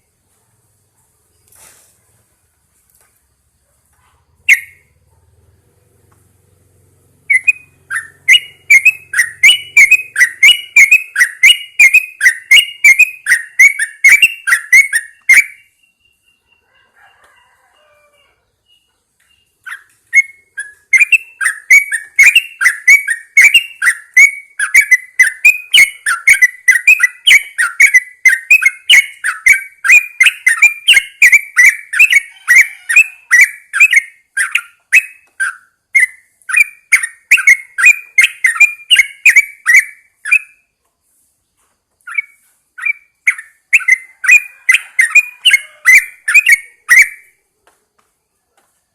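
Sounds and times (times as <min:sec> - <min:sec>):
bird singing bubbly notes: 0:07.3 - 0:16.2.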